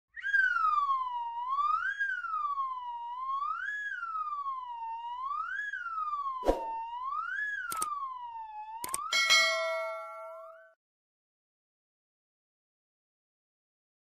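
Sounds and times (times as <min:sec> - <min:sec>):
siren-like wailing tone: 0:00.1 - 0:10.8
sharp click: 0:07.7 - 0:07.9, 0:08.8 - 0:09.1.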